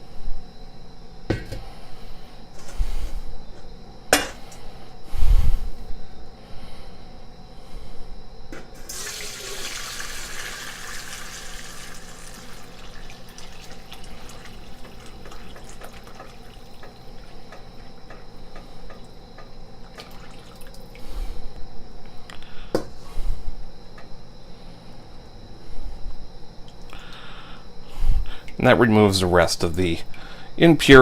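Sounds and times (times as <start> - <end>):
stock pouring through strainer: 8.8 - 16.0
liquid trickling and dripping: 8.9 - 17.6, 19.9 - 21.0.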